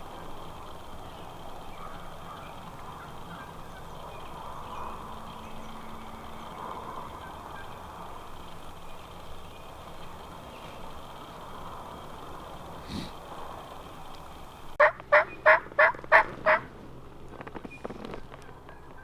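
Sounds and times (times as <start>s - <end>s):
outdoor background noise: 0.0s - 19.0s
turkeys gobbling: 1.4s - 10.4s, 14.8s - 16.7s.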